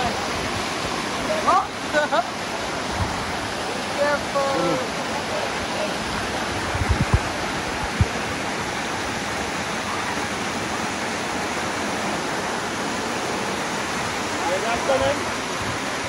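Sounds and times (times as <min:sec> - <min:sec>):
waterfall rushing: 0:00.0 - 0:16.0
low bumps: 0:06.5 - 0:08.4.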